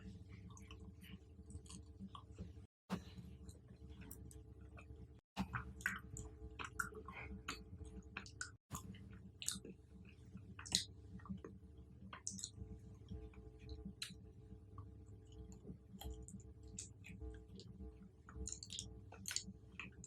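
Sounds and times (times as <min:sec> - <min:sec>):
chewing crunches: 0:18.4 - 0:20.0.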